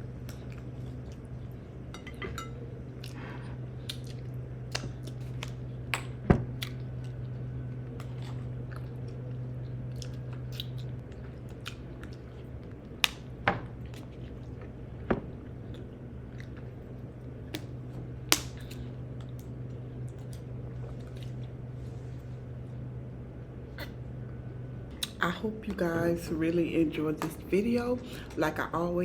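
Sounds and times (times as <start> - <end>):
steady low hum: 0.0 - 29.0
person chewing: 0.2 - 2.2, 2.9 - 14.8.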